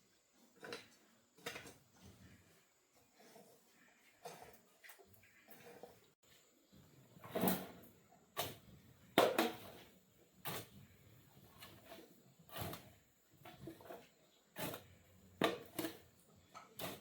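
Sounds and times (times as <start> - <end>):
hand tool striking and scraping: 11.6 - 17.0.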